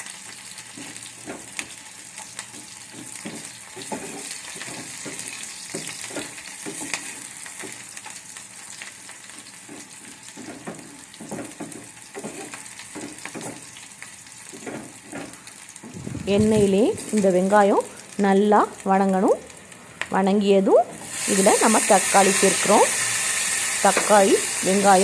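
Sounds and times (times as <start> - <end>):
onions sizzling in oil: 0.0 - 25.0
spoon scraping a pan: 2.5 - 7.2, 9.3 - 13.6.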